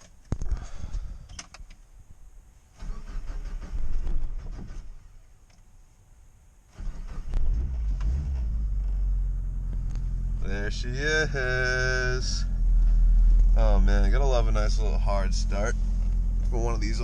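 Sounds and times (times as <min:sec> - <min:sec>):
engine cranking on starter: 0:02.7 - 0:05.2, 0:06.7 - 0:09.2
car engine running: 0:07.3 - 0:17.0.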